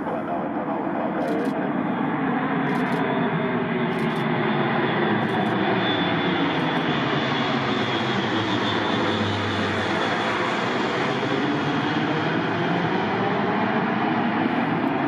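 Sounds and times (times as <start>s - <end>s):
turboprop engines running: 0.0s - 15.0s.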